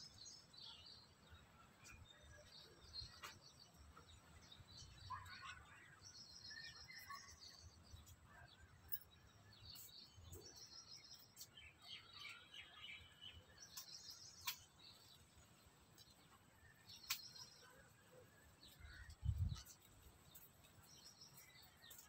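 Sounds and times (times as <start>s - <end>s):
faint bird chirps: 0.0s - 15.4s.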